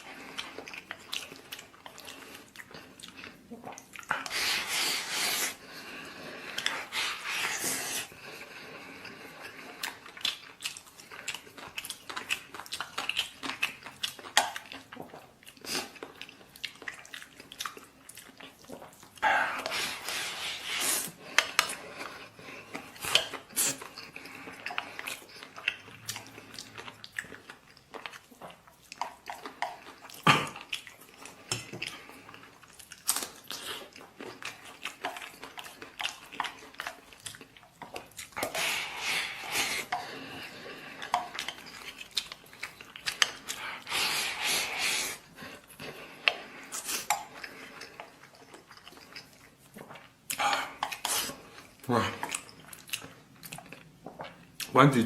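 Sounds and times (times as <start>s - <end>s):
person chewing: 0.0s - 54.8s.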